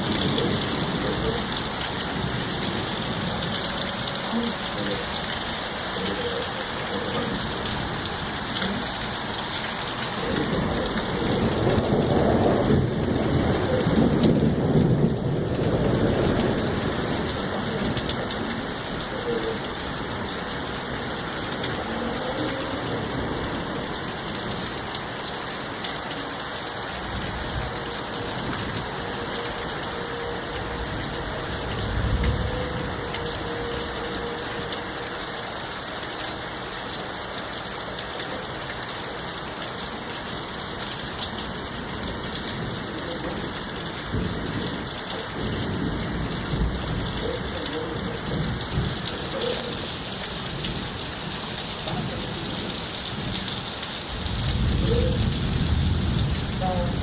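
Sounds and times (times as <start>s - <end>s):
low rumble of thunder: 0.0s - 5.4s, 10.0s - 24.9s, 27.0s - 34.6s, 40.4s - 53.5s, 54.1s - 57.0s
steady rain pouring: 0.0s - 57.0s.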